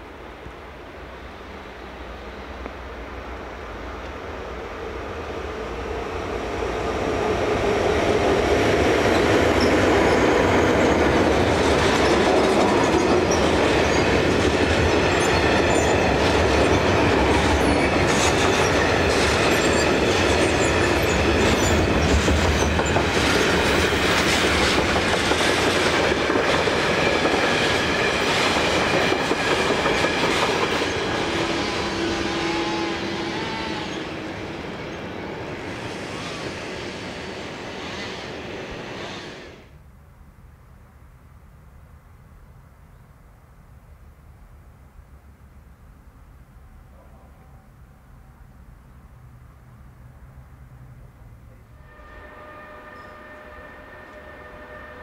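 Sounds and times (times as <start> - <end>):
train rumble: 0.0 - 39.8.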